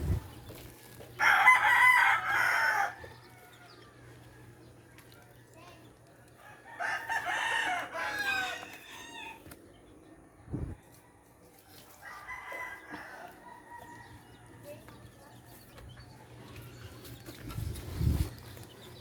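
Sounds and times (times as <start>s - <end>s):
rooster crowing: 1.2s - 4.6s, 6.4s - 9.5s, 12.0s - 14.8s.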